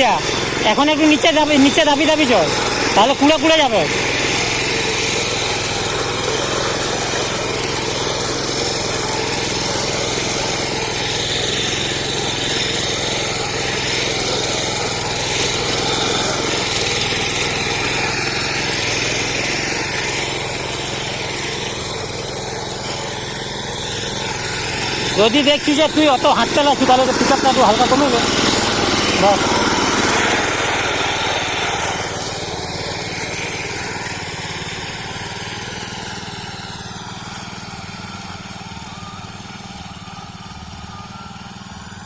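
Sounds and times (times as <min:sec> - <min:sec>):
power weeder engine running: 0:00.0 - 0:42.0
tines churning soil: 0:00.0 - 0:42.0.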